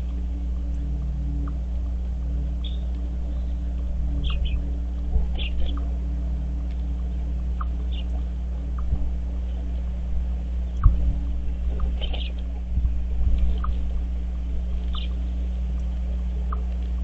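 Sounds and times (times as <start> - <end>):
steady low hum: 0.0 - 17.0
steady low rumble: 0.0 - 17.0
high bird chirps: 2.6 - 4.7, 5.3 - 5.9, 7.6 - 8.9, 11.8 - 12.4, 14.8 - 15.2
short bird chirps: 14.9 - 15.2.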